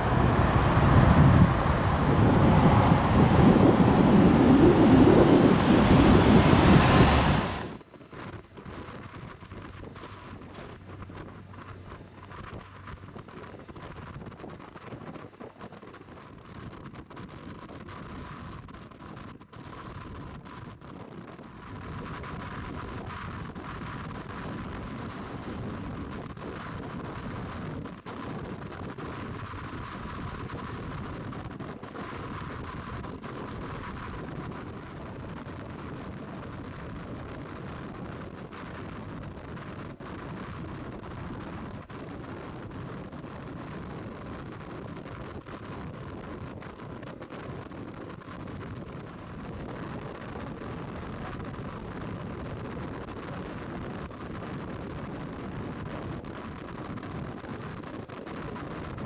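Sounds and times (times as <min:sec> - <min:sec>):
motorcycle engine running: 0:00.0 - 0:07.8
wind rush over microphone: 0:00.0 - 0:59.0.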